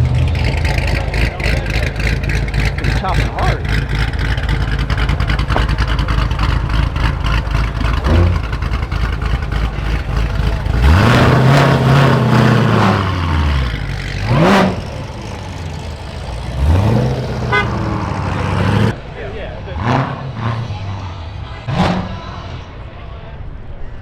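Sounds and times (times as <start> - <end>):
car engine idling and revving: 0.0 - 23.8.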